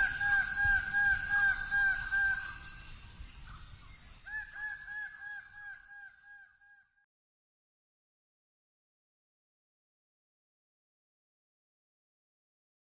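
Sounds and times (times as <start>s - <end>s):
high insect hum: 0.0s - 6.2s.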